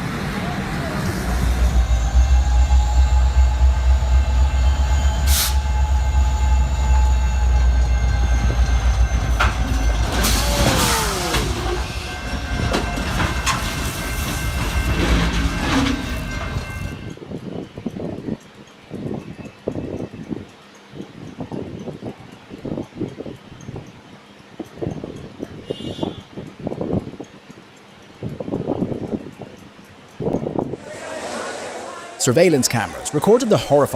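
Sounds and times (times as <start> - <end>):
steady high tone: 0.0 - 17.2, 30.4 - 33.9
train passing at speed: 0.0 - 17.6, 27.8 - 33.9
sharp clanks and knocks: 9.3 - 16.6.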